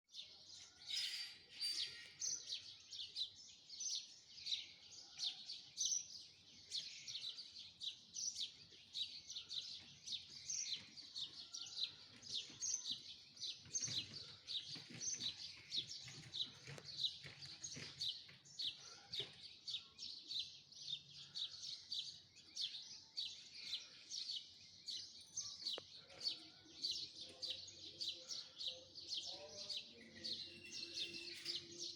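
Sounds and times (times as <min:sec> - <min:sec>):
chorus of high chirps: 0:00.8 - 0:02.7, 0:29.3 - 0:31.9.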